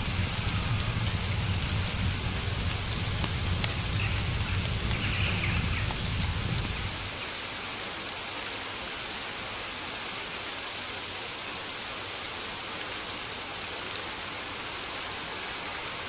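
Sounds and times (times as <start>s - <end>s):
low rumble: 0.0s - 7.2s
raindrops ticking sharply: 0.0s - 7.5s
steady rain falling: 0.0s - 16.0s.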